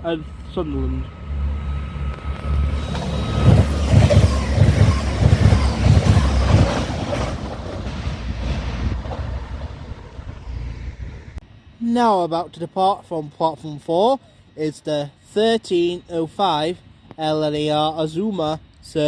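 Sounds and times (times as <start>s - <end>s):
train passing at speed: 0.0s - 11.8s.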